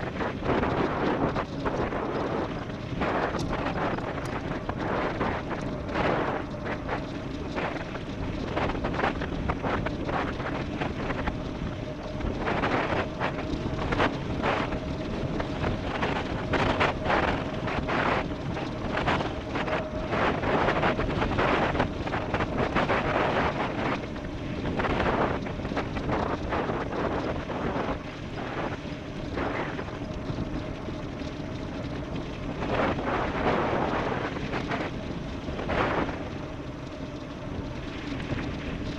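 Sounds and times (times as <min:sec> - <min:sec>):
faint steady hum: 0:00.0 - 0:38.9
wind buffeting microphone: 0:00.0 - 0:38.9.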